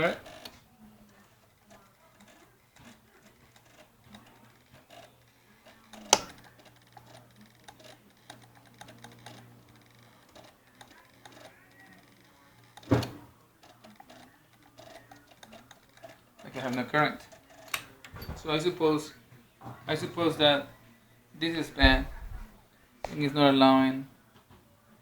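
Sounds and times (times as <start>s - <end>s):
small clicks from handling controls: 0.0s - 18.7s
sharp clicks: 1.2s - 18.2s.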